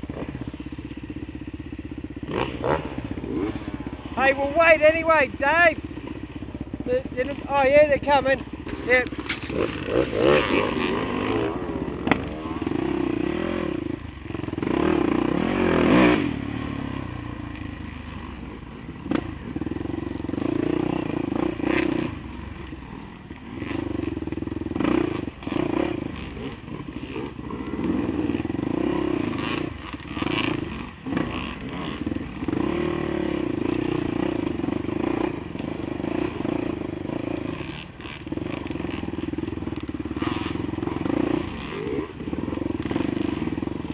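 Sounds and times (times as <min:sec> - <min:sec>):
dirt bike engine revving: 0:00.0 - 0:43.9
clattering and scraping: 0:08.6 - 0:10.7.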